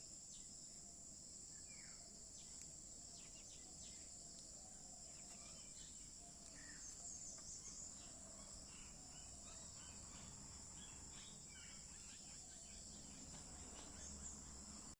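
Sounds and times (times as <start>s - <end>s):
insect drone: 0.0s - 14.9s
birds chirping: 5.0s - 14.9s.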